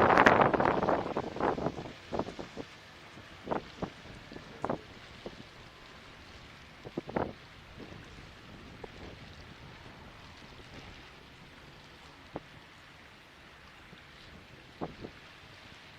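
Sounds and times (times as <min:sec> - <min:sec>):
rushing water: 0:00.0 - 0:15.9
wind: 0:00.0 - 0:15.9.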